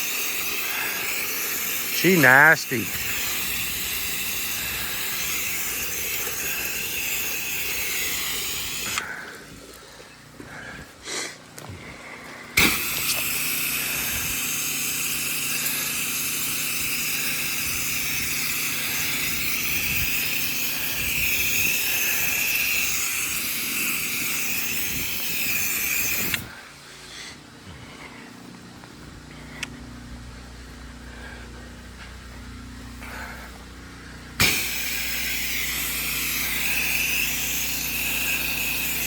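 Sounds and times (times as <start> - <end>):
spray hissing with high whistle: 0.0 - 9.0, 12.6 - 26.5, 34.4 - 39.0
low steady hum: 26.4 - 39.0.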